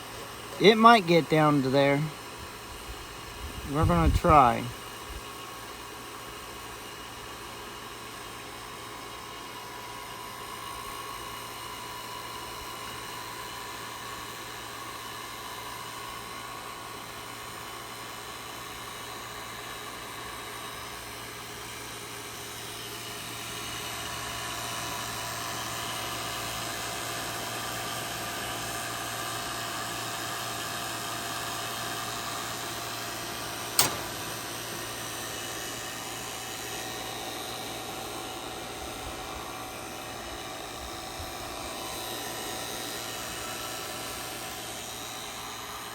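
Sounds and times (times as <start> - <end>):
vacuum pump running: 4.8 - 45.9
sharp click: 33.7 - 35.0.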